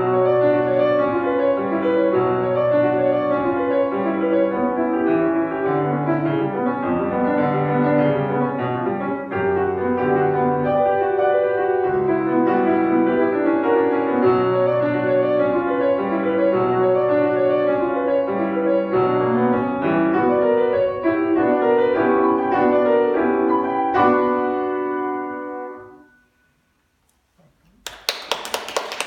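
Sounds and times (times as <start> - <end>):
solo piano playing: 0.0 - 26.4
people clapping: 27.6 - 29.0.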